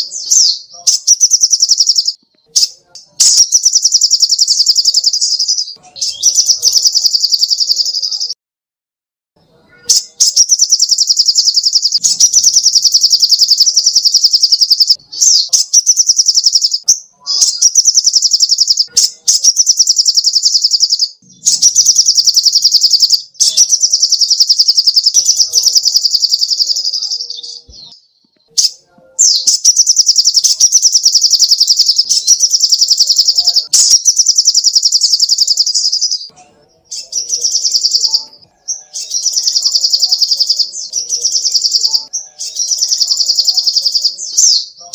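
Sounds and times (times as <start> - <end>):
bird singing rapid trills: 0.0 - 8.4, 9.8 - 44.9.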